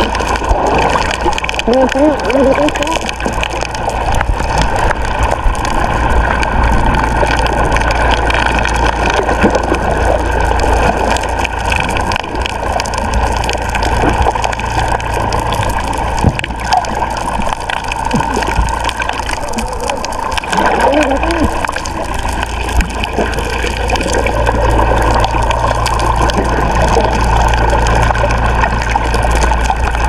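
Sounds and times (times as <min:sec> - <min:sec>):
boat engine running: 0:00.0 - 0:30.0
water splashing around hull: 0:00.0 - 0:30.0.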